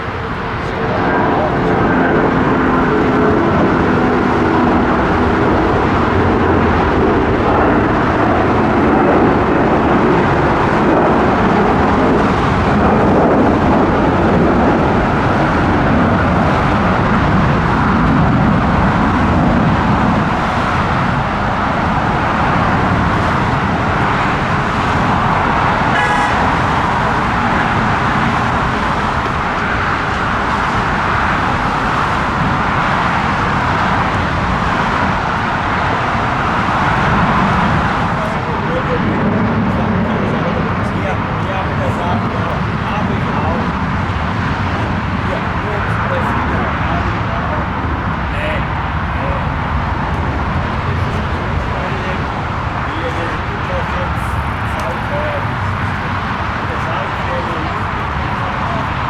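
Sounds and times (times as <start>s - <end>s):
jet engines rumbling: 0.0s - 59.0s
brief higher tone: 25.9s - 26.6s.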